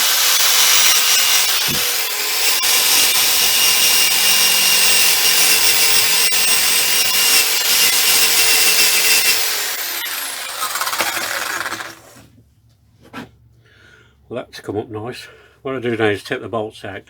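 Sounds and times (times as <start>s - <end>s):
motor winding down: 0.0s - 12.2s
power tool scouring metal: 0.0s - 12.2s.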